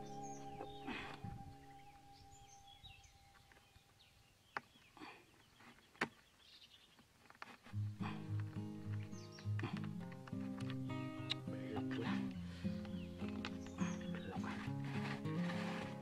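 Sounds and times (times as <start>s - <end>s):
background music: 0.0s - 3.3s
outdoor background noise: 0.0s - 16.0s
small birds chirping: 0.0s - 16.0s.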